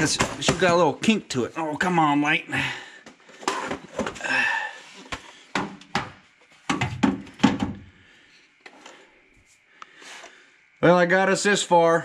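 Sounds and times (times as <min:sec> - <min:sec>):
tools and parts knocking: 0:00.0 - 0:00.8, 0:05.5 - 0:07.9.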